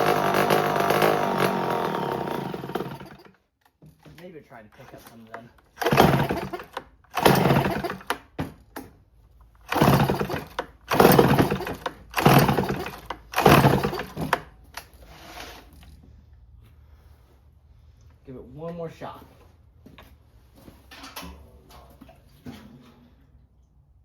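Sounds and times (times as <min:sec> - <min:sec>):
chainsaw pull-cord starter pulls: 0:00.0 - 0:03.4, 0:04.8 - 0:08.4, 0:09.6 - 0:15.0.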